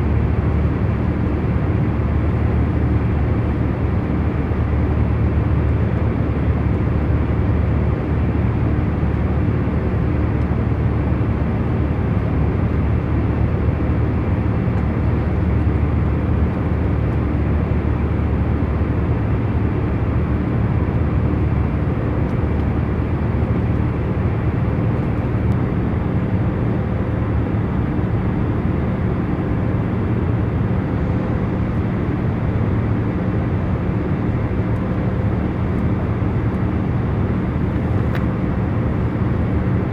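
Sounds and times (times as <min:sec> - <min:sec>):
airliner cabin hum: 0:29.3 - 0:39.9.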